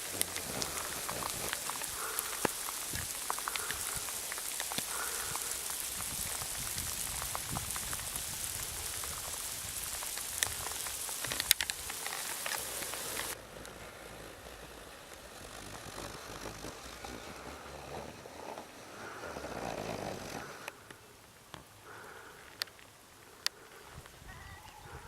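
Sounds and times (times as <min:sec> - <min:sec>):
raindrops ticking: 0:00.0 - 0:13.4.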